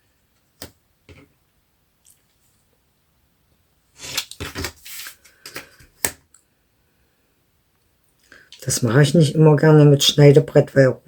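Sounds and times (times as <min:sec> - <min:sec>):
paper rustling: 0:04.0 - 0:05.8.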